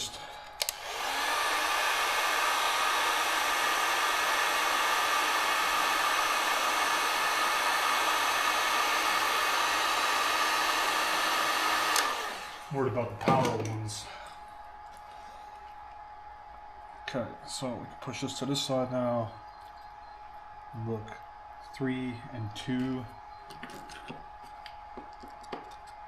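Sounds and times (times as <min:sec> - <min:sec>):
heat gun blowing: 0:00.0 - 0:13.0
heat gun switch click: 0:00.5 - 0:00.9, 0:11.9 - 0:12.2.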